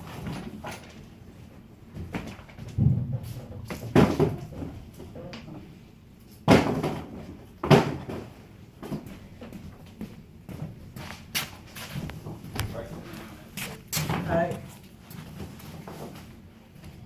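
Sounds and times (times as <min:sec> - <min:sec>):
items knocking and banging: 0:01.9 - 0:05.2, 0:06.4 - 0:09.8.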